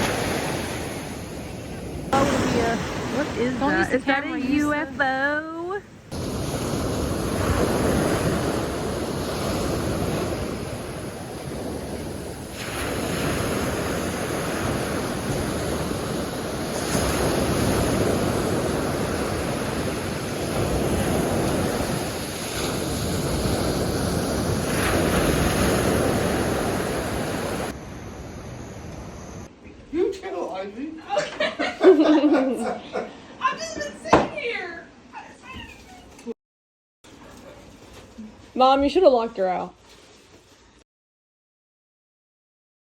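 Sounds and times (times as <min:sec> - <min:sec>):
ocean surf washing on shore: 0:00.0 - 0:04.8, 0:06.1 - 0:29.2
wind buffeting microphone: 0:06.1 - 0:27.7.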